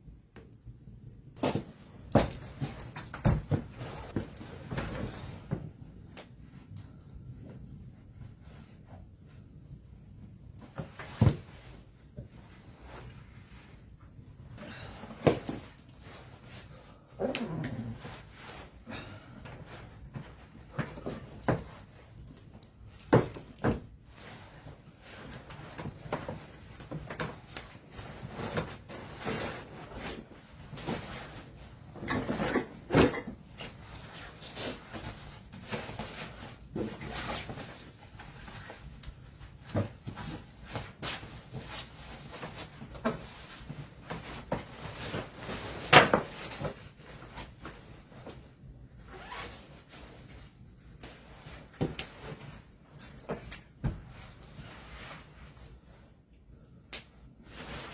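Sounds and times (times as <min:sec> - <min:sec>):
objects handled and set down: 0:51.5 - 0:54.4.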